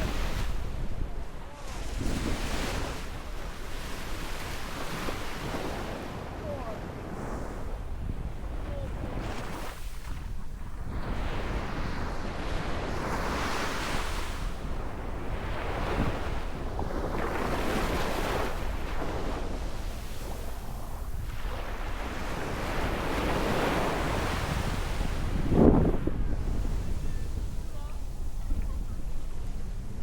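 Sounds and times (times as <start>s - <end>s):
sea waves washing in: 0.0s - 30.0s
wind buffeting microphone: 0.0s - 30.0s.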